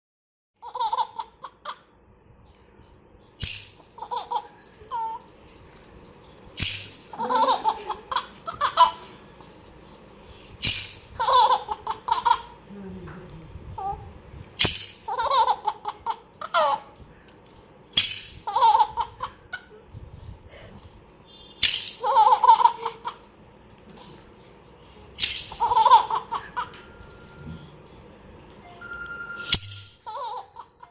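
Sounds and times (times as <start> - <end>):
baby laughing: 0.6 - 1.9, 4.0 - 5.3, 7.1 - 9.1, 11.2 - 12.6, 15.1 - 17.0, 18.4 - 19.8, 21.9 - 23.3, 25.5 - 26.8, 30.0 - 30.9
toy rattle shaking: 3.4 - 4.4, 5.0 - 8.0, 10.6 - 11.7, 14.6 - 15.5, 18.0 - 19.0, 21.6 - 22.5, 25.2 - 26.2.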